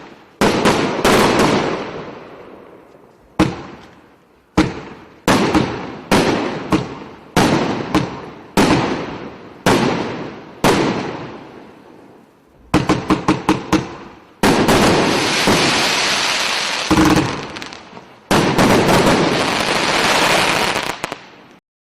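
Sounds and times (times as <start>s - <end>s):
dense firework bursts: 0.0s - 2.6s, 4.5s - 21.4s
firework shots bursting: 4.6s - 11.4s, 12.6s - 21.3s.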